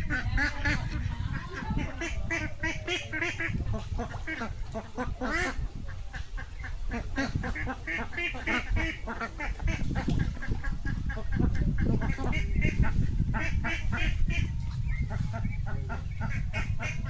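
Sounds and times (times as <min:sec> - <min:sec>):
ducks quacking: 0:00.0 - 0:17.0
low rumble: 0:07.4 - 0:17.0.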